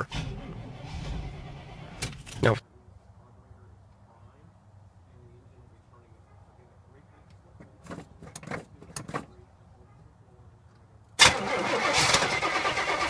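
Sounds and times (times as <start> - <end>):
car starter cranking engine: 0.0 - 2.4, 11.2 - 13.0.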